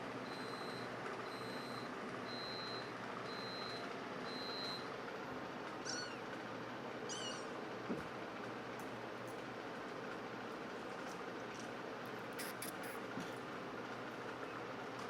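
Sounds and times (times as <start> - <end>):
reversing alarm beeping: 0.3 - 4.9
cat meowing: 5.8 - 6.3, 7.1 - 7.5.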